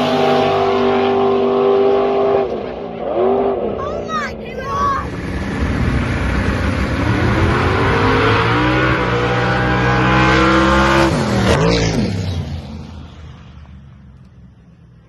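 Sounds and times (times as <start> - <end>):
drag car engine revving: 5.0 - 12.5.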